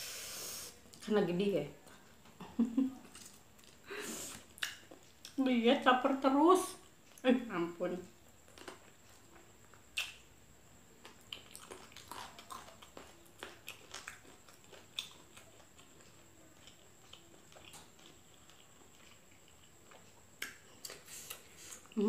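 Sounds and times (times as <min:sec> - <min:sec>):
person chewing: 0:03.1 - 0:05.4, 0:08.3 - 0:10.3, 0:11.0 - 0:22.0
lip smacks: 0:09.9 - 0:10.2.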